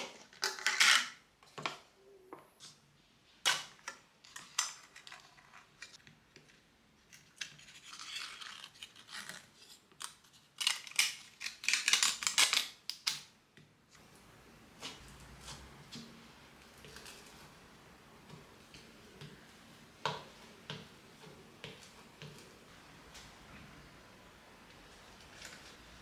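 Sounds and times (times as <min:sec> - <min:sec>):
handling scrapes rustles and clicks: 0:14.0 - 0:26.0.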